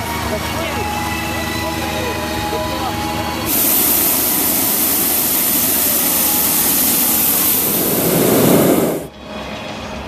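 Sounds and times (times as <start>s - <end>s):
propane burner blasting: 0.9s - 9.2s.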